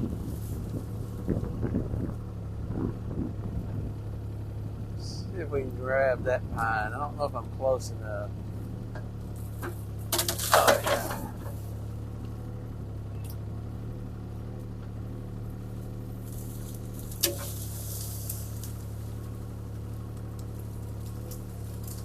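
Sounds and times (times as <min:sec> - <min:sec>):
excavator diesel engine running: 0:00.0 - 0:22.0
sharp crack: 0:09.7 - 0:11.6, 0:17.0 - 0:18.9.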